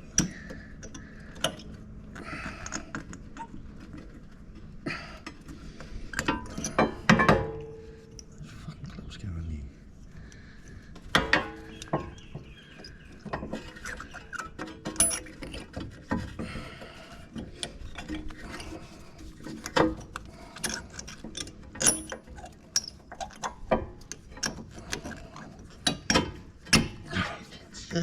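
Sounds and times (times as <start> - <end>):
metal tools clicking and knocking: 6.1 - 7.8, 11.1 - 18.8, 19.4 - 27.0.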